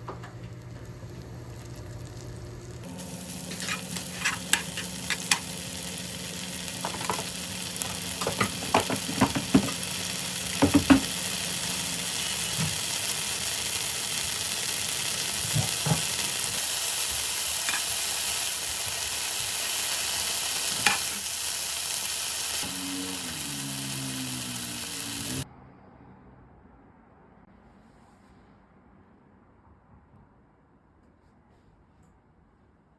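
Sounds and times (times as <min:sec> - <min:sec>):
food sizzling in a pan: 0:00.3 - 0:25.4
utensils scraping a pan: 0:03.3 - 0:05.5.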